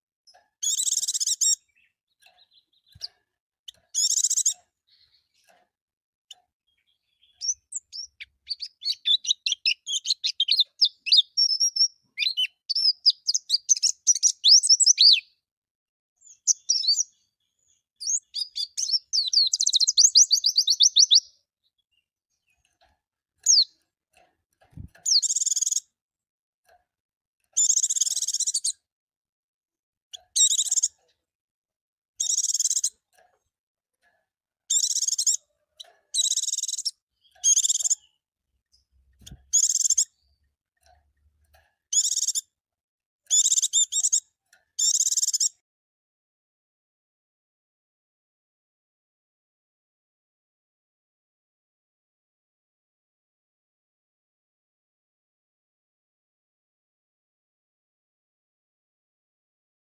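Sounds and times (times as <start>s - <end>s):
bird twittering song: 0.3s - 5.6s, 6.3s - 15.4s, 16.2s - 23.8s, 24.7s - 25.9s, 27.5s - 28.8s, 30.1s - 31.2s, 32.2s - 33.2s, 34.7s - 42.5s, 43.3s - 45.6s.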